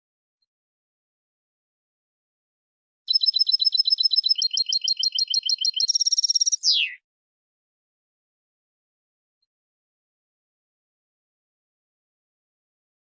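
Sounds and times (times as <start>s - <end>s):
goldfinch song: 3.1s - 7.0s.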